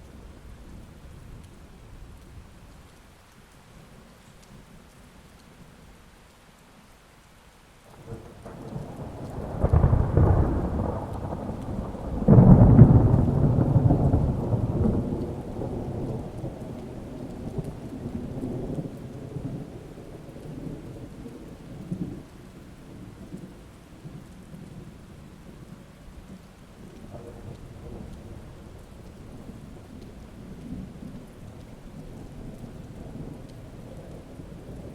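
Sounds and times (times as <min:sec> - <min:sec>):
steady rain: 0:00.0 - 0:34.9
thunder cracking and rumbling: 0:07.9 - 0:24.9, 0:25.5 - 0:34.9.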